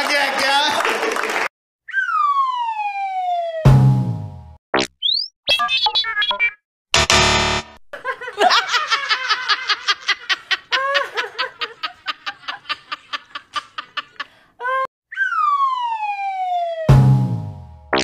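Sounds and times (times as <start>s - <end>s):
falling whistle: 1.9s - 3.6s, 15.1s - 16.9s
quick laughter: 8.0s - 14.4s.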